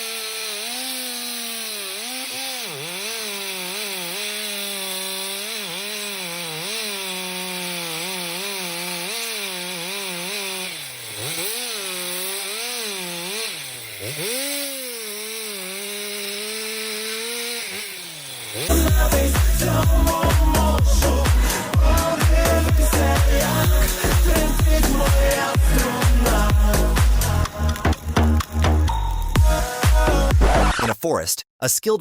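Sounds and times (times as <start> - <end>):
chainsaw cutting a tree: 0.0 - 30.4
loud dance music: 18.7 - 28.1, 28.8 - 32.0.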